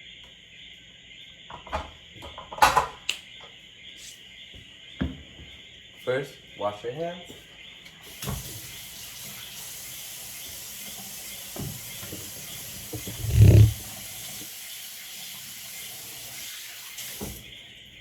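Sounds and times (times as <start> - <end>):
tap running into a sink: 8.1 - 14.5, 15.6 - 17.4
hands being washed: 9.2 - 14.4.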